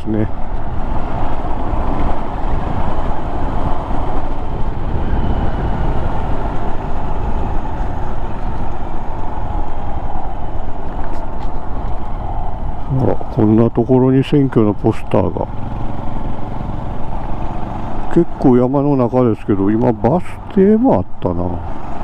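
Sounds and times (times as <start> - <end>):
wind rush on microphone: 0.0 - 22.0
motorcycle engine running: 15.3 - 18.1.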